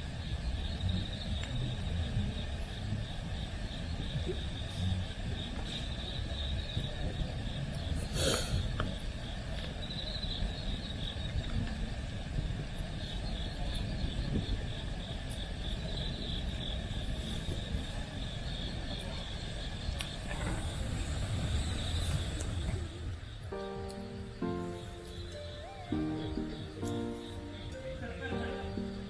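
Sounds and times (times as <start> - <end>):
low steady rumble: 0.0 - 18.0
insects trilling: 0.0 - 29.0.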